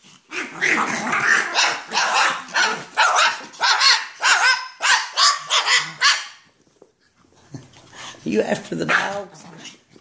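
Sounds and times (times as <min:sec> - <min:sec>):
dog barking high-pitched: 0:00.8 - 0:06.4.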